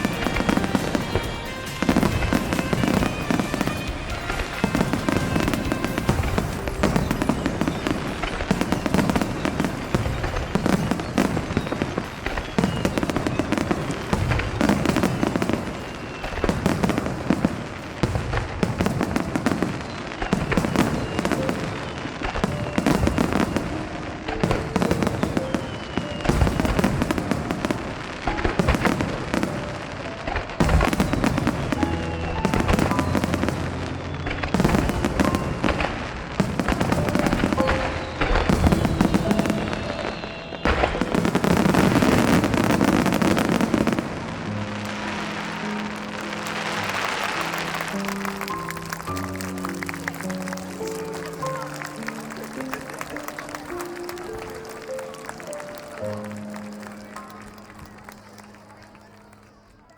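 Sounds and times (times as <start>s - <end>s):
music over loudspeakers: 0.0s - 11.8s
fireworks bursting and booming: 0.0s - 59.9s.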